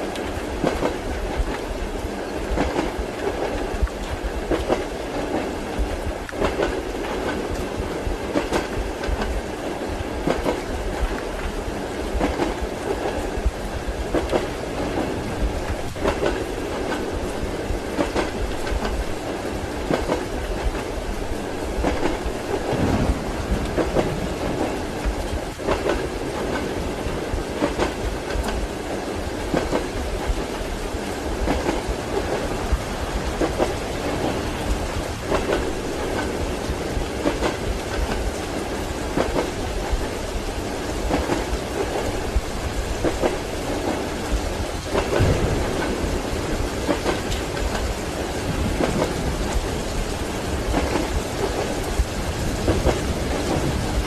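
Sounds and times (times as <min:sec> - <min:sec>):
rain hissing: 0:00.0 - 0:54.0
train carriage rumble: 0:00.0 - 0:54.0
wheels clacking over rail joints: 0:19.8 - 0:40.2, 0:41.0 - 0:54.0.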